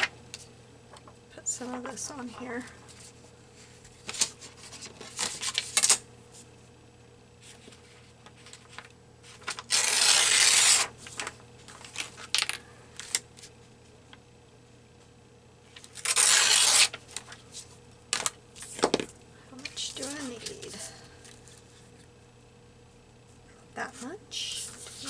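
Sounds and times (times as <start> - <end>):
paper rustling and tapping: 11.0 - 13.5, 17.1 - 21.5
paper scraping rubs: 16.0 - 17.7, 24.0 - 25.0.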